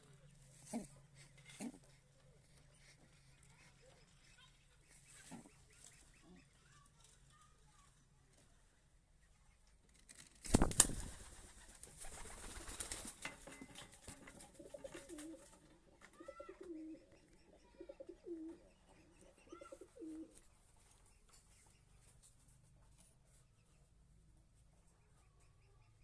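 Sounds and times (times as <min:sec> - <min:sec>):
pigeon cooing: 0:00.5 - 0:02.8, 0:14.4 - 0:20.4.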